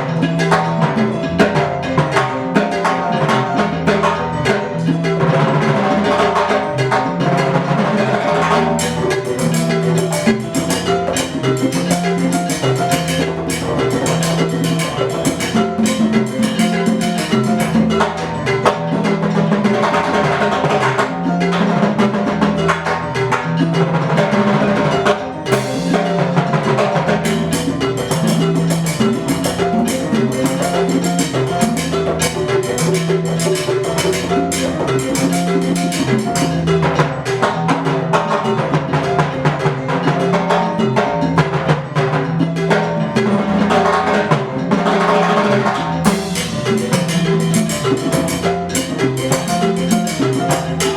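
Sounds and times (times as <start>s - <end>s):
fast percussion drumming: 0.0s - 50.9s.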